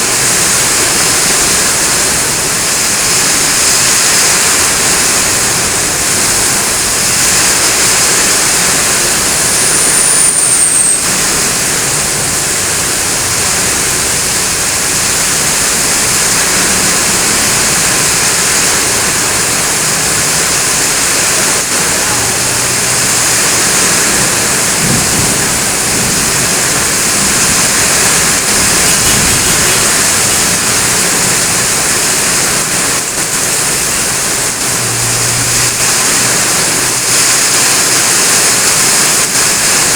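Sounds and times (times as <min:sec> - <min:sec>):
heavy rain pouring: 0:00.0 - 0:39.9
high falling whistle: 0:09.4 - 0:11.2.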